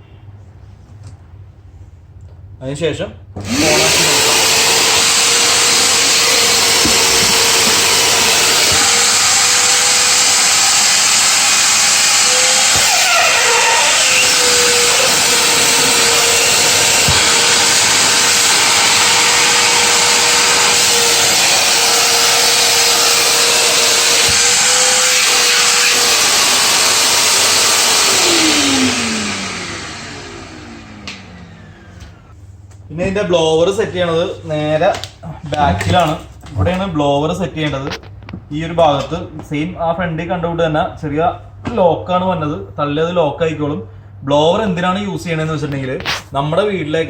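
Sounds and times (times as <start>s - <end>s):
vacuum cleaner running: 3.4s - 32.4s.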